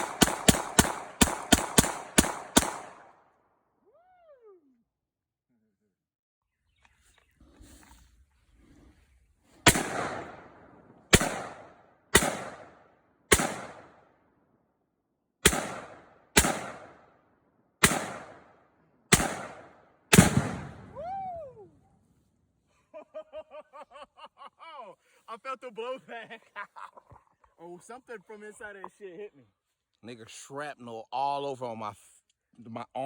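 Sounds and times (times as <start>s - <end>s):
rifle shots echoing: 0.0s - 3.2s, 9.6s - 14.1s, 15.4s - 17.2s, 17.8s - 21.0s.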